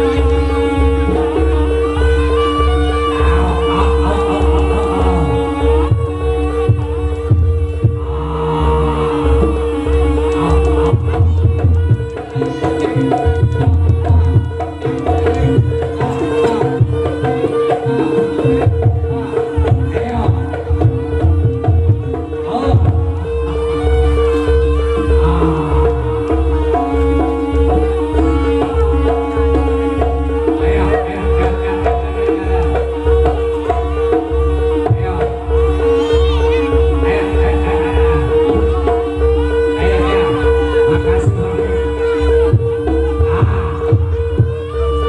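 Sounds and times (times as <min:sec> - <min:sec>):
hand drums fast rhythm: 0:09.7 - 0:23.1.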